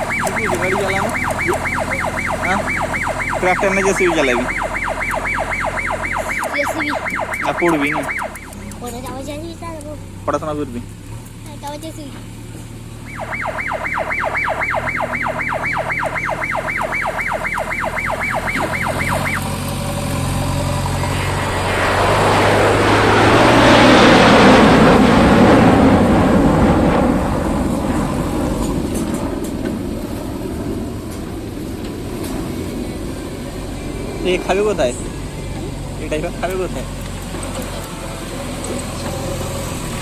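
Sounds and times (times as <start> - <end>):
electronic warning horn warbling: 0.0 - 9.2, 13.0 - 25.6
vehicle passing close by: 0.0 - 10.8, 13.0 - 40.0
diesel engine hum: 0.0 - 40.0.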